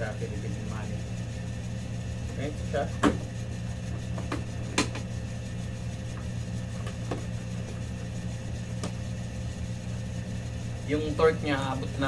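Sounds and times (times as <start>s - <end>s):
machine or fan humming: 0.0s - 12.0s.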